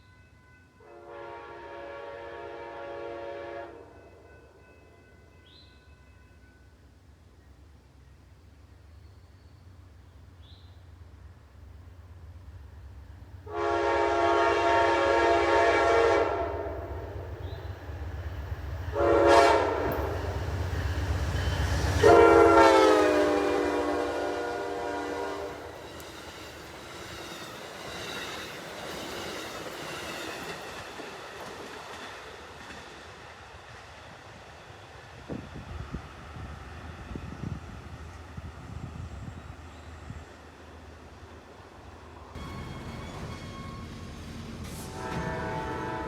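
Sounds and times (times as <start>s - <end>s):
train air horn blasts: 0.8s - 4.2s, 13.5s - 17.6s, 18.9s - 20.4s, 21.9s - 25.9s, 42.4s - 46.0s
train cars clattering: 16.8s - 34.2s, 42.3s - 46.0s
locomotive engine rumble: 42.2s - 46.0s.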